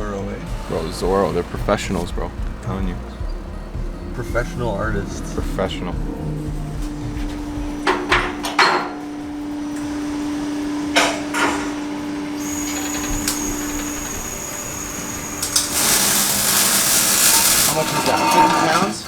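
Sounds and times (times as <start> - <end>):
steady hum: 0.0 - 18.1
high thin whine: 0.0 - 18.8
tools clanking on metal: 7.2 - 9.1.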